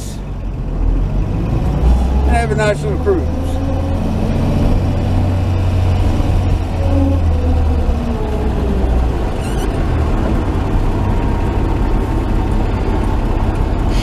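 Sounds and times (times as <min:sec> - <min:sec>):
road and drivetrain rumble: 0:00.0 - 0:14.0
truck engine running: 0:00.0 - 0:14.0.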